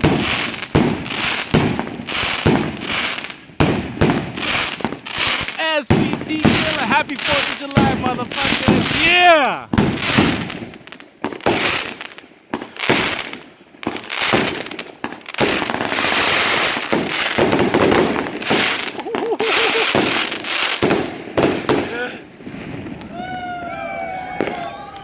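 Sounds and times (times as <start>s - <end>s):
firework cake bangs: 0.0s - 12.0s, 12.6s - 23.1s.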